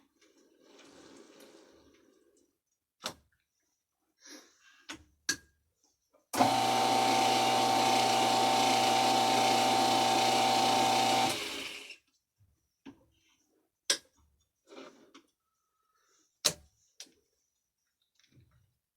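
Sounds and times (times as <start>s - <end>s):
lathe motor whining: 6.4s - 12.0s.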